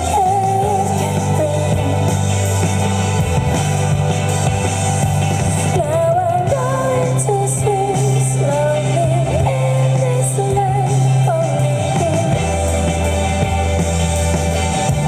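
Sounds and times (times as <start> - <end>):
person singing: 0.0 - 2.2, 5.6 - 12.6
bass line: 0.0 - 15.0
rock band playing live: 0.0 - 15.0.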